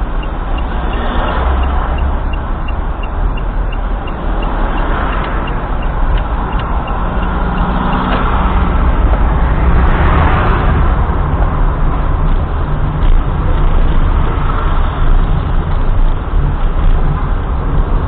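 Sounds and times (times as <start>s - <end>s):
faint regular ticking: 0.0s - 8.2s
road and engine noise: 0.0s - 18.0s.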